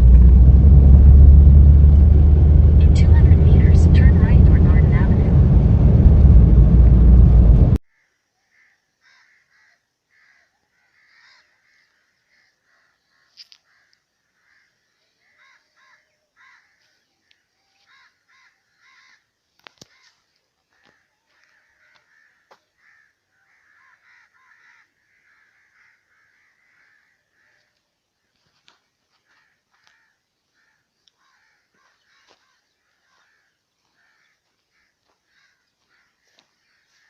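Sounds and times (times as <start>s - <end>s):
faint crows cawing: 7.9s - 37.0s.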